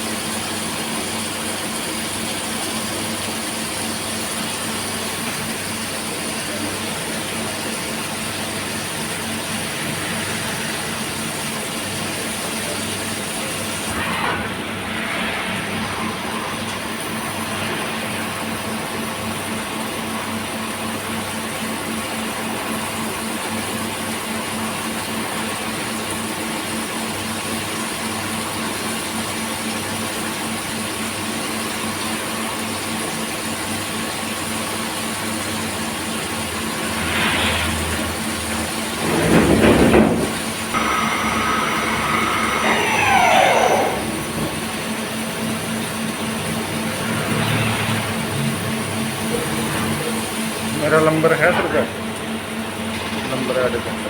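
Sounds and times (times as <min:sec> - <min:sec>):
whine falling in pitch: 0:13.4 - 0:19.0, 0:40.8 - 0:45.0
cnc machine humming: 0:40.7 - 0:52.8.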